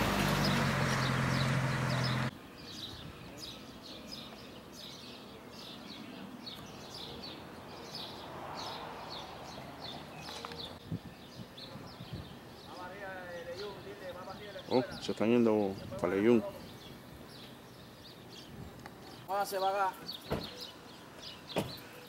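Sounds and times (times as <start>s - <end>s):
car engine running: 0.0s - 2.3s.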